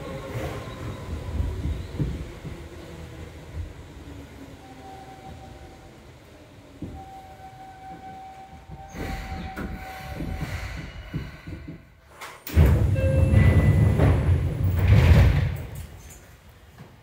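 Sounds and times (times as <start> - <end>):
train doors opening with a rush: 0.0 - 17.0
electric train braking to a stop: 4.6 - 14.9.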